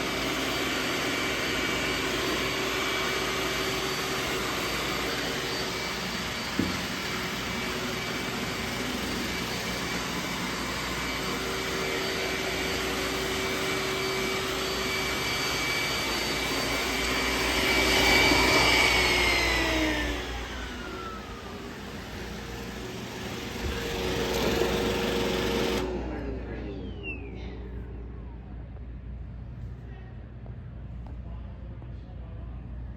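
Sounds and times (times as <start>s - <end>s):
robot vacuum whirring: 0.0s - 26.1s.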